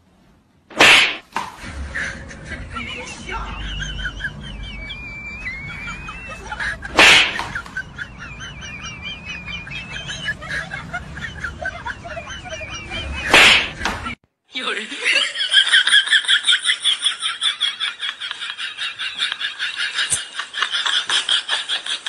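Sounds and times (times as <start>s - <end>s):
high wavering chirping: 3.8s - 10.7s.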